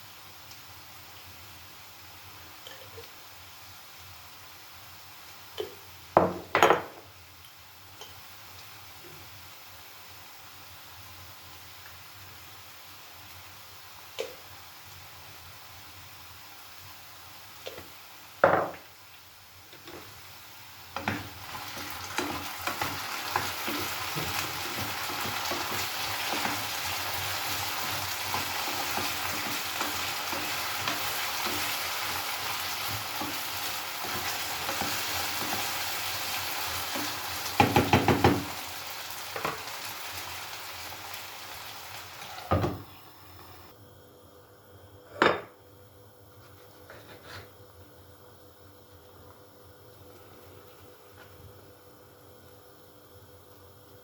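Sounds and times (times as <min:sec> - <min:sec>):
food sizzling in a pan: 0:00.0 - 0:43.8
utensil knocking against pan: 0:37.6 - 0:38.5.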